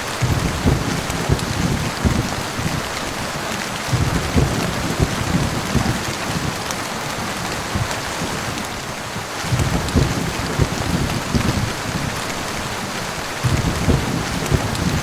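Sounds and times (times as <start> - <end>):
heavy rain pouring: 0.0 - 15.0
short low thumps: 0.2 - 2.9, 3.9 - 6.5, 9.5 - 11.8, 13.4 - 15.0.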